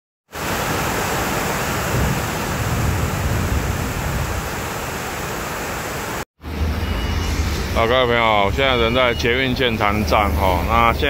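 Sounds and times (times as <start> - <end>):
heavy rain pouring: 0.3 - 6.2
deep thunder rumble: 1.8 - 4.7.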